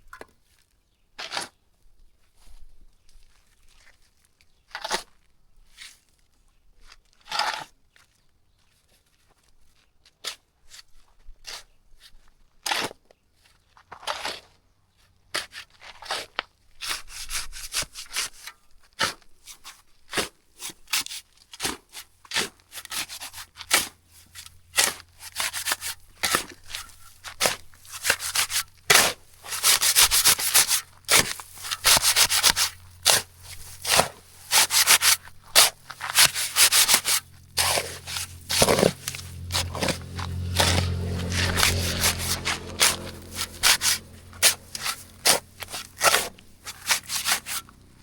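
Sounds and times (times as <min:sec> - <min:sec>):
tool scraping gritty surface: 0:01.2 - 0:01.6, 0:07.2 - 0:07.7, 0:13.9 - 0:14.6, 0:15.4 - 0:48.0.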